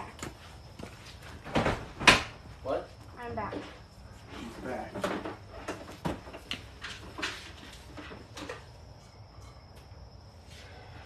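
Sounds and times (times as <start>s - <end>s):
objects knocking and clattering: 4.7s - 9.9s.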